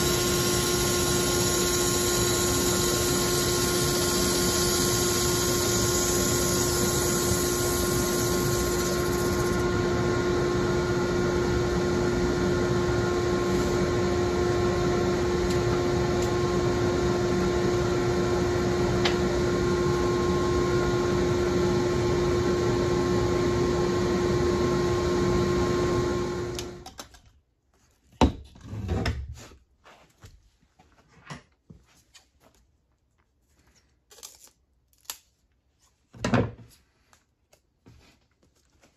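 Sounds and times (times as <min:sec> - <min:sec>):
small electric motor humming: 0:00.0 - 0:09.6.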